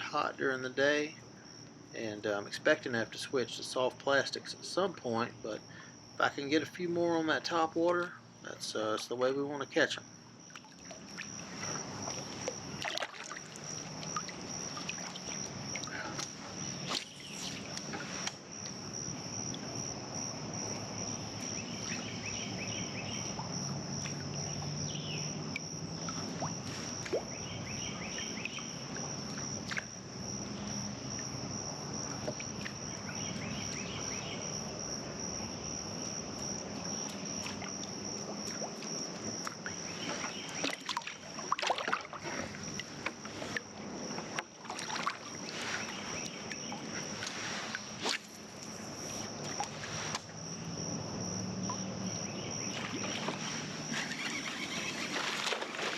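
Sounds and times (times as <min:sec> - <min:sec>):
water sounds: 0:10.2 - 0:34.8, 0:36.2 - 0:55.9
high-pitched insect chirring: 0:53.4 - 0:55.5.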